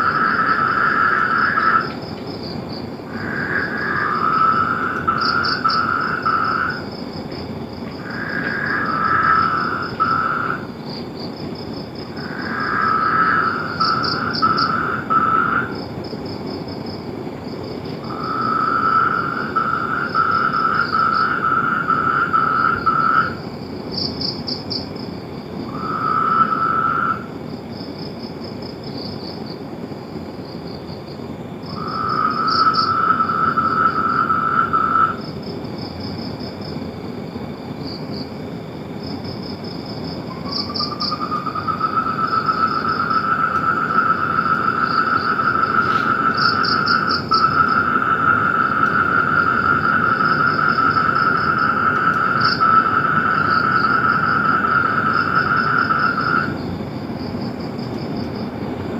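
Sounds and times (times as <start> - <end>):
higher pulsing frog call: 0.0 - 7.1, 7.9 - 11.0, 12.0 - 16.0, 18.0 - 24.9, 25.6 - 27.4, 31.6 - 35.4, 39.2 - 57.5
frogs trilling: 0.0 - 29.6, 30.4 - 58.6.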